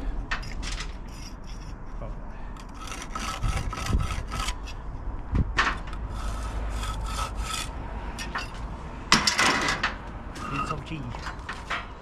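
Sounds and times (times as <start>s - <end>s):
hand tool scraping on brick: 0.4s - 2.0s, 2.6s - 4.8s, 5.9s - 8.5s.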